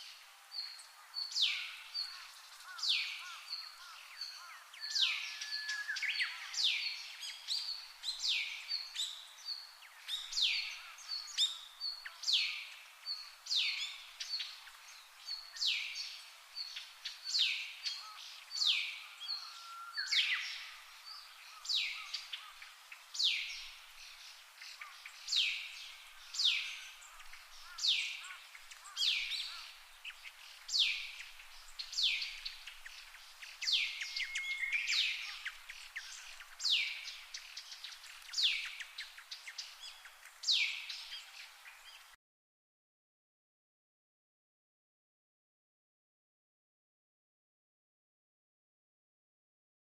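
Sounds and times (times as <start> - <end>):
bird calling: 9.9 - 42.1.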